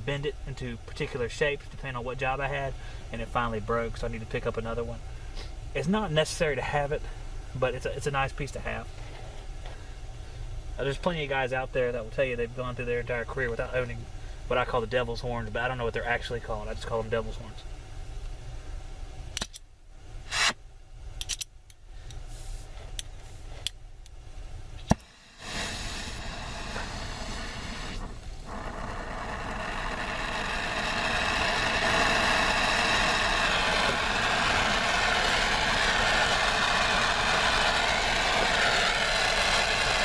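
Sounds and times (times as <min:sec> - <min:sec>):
sharp click: 0:19.4 - 0:19.6, 0:21.2 - 0:21.8
torch flame hissing: 0:24.8 - 0:40.0.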